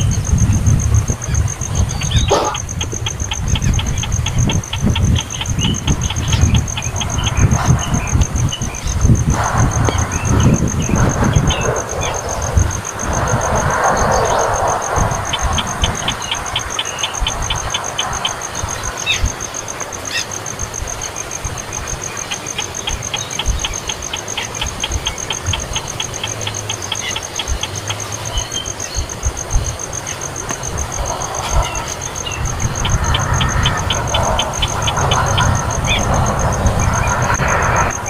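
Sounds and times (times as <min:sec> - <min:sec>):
uneven low rumble: 0:00.0 - 0:19.7, 0:28.2 - 0:38.0
steady high-pitched trill: 0:22.0 - 0:38.0.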